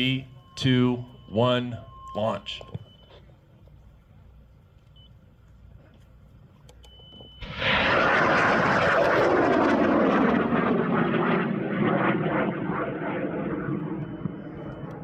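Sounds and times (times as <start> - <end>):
rocket motor roaring: 7.4 - 15.0.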